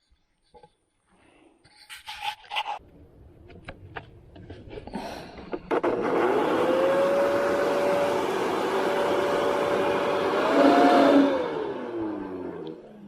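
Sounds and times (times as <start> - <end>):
electric fan motor whining: 5.7 - 13.0.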